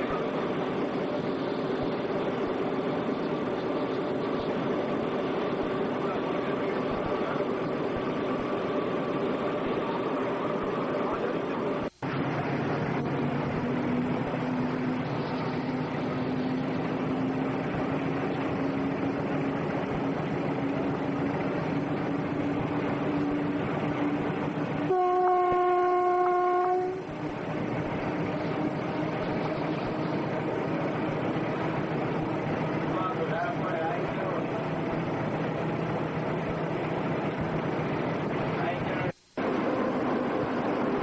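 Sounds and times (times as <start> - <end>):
train rumbling: 0.0 - 41.0
train horn blast: 24.9 - 27.2.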